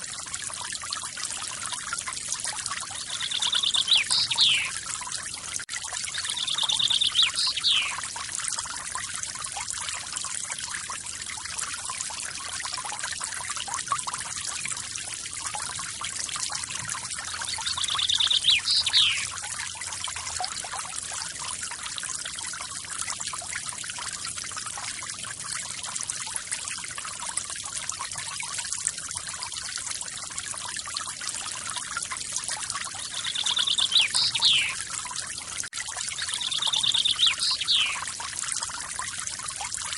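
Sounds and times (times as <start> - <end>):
songbird trilling: 3.1 - 4.8, 6.2 - 8.0, 17.5 - 19.3, 33.1 - 34.8, 36.2 - 38.0.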